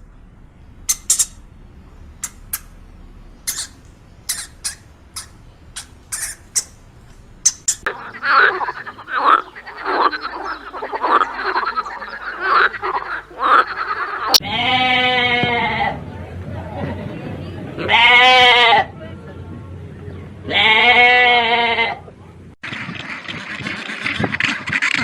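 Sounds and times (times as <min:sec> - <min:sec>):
frogs croaking: 0:02.0 - 0:15.2
wavering bleat: 0:14.3 - 0:16.0, 0:17.8 - 0:18.9, 0:20.5 - 0:22.0.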